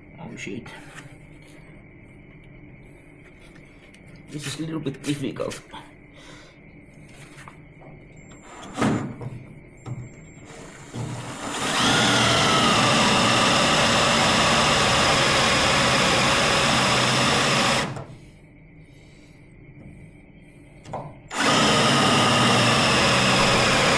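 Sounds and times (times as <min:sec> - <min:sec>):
electric drill boring into steel: 0:10.5 - 0:18.0, 0:21.3 - 0:23.9.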